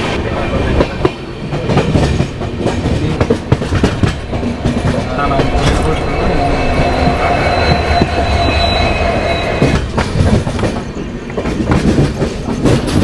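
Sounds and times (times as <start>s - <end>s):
train wheels rumbling on rails: 0.0s - 13.0s
high wheel squeal: 3.0s - 11.0s.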